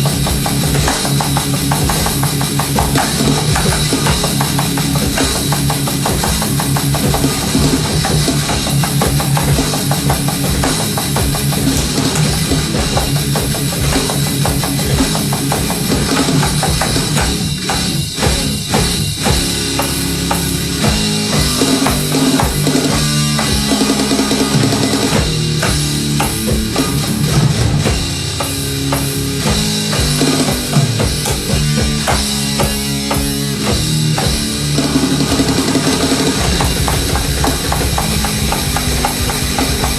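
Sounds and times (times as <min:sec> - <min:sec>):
drum kit driving beat: 0:00.0 - 0:39.9
rock band playing live: 0:00.0 - 0:39.9.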